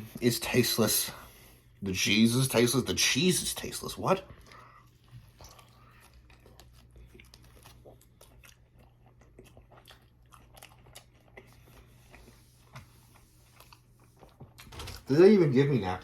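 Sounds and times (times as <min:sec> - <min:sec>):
faint chewing with mouth smacks: 0:04.2 - 0:14.7.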